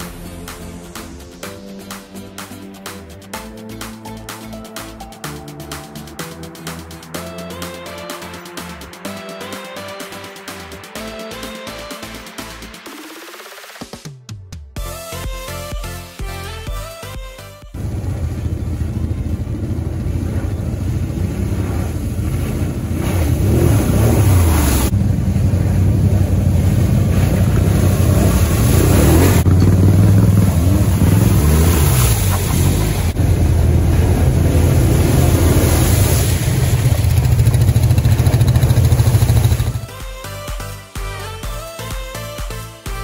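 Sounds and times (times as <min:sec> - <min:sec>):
quad engines revving: 0:17.8 - 0:39.9
water splashing: 0:17.8 - 0:39.9.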